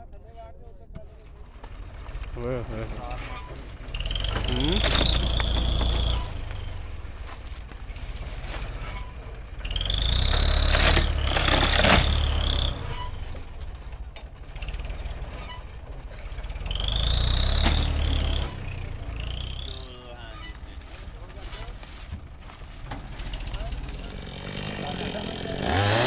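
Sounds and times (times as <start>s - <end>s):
motor engine revving with whine: 2.0s - 13.9s, 14.5s - 20.6s, 23.2s - 26.0s.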